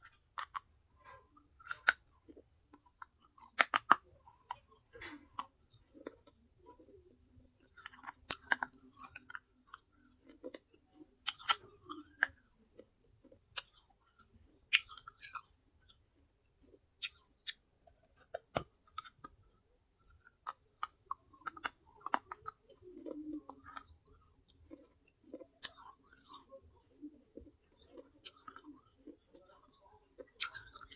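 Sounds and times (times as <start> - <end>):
crunching baked clay: 0.0 - 16.0.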